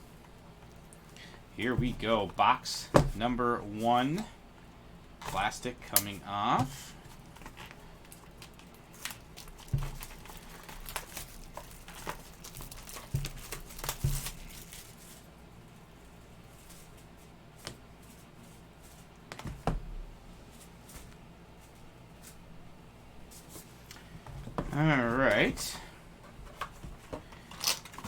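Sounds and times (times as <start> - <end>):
plastic wrap tearing and crinkling: 7.3 - 15.3, 27.4 - 28.0.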